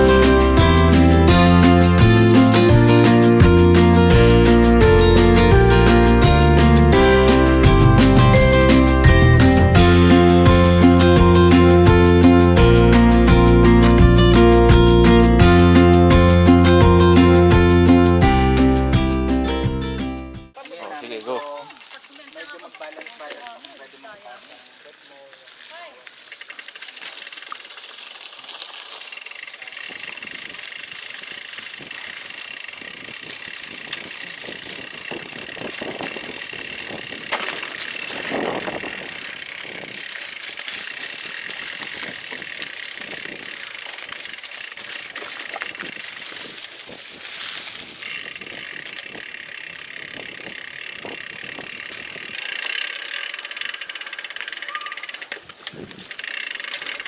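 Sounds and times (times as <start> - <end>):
bike rattling and clicking: 0.0 - 18.3, 20.5 - 57.0
bike tyres on dirt: 20.5 - 57.0.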